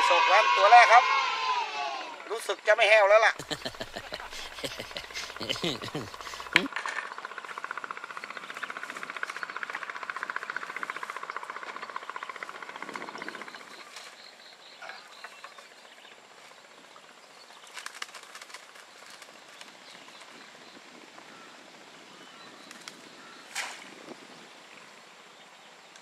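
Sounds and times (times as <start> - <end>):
faint clicks and rustles: 17.5 - 20.5.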